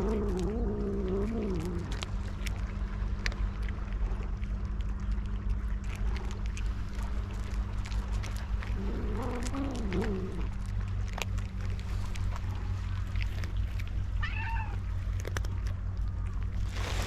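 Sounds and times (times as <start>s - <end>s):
steady low rumble: 0.0s - 17.0s
cat meowing: 14.2s - 14.8s.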